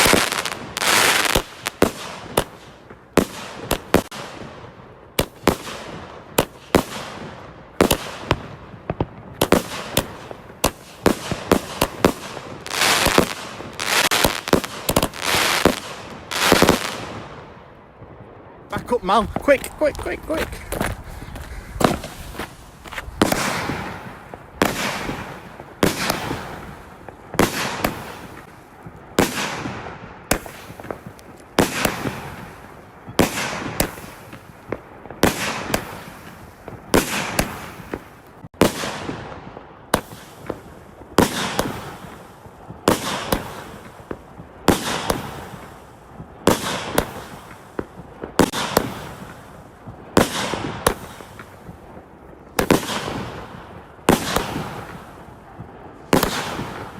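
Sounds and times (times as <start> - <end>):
firework hiss: 0.0 - 4.2, 9.5 - 17.1, 19.1 - 28.5
firework cake bangs: 18.8 - 28.5, 29.2 - 39.2, 46.4 - 49.5, 54.1 - 56.9.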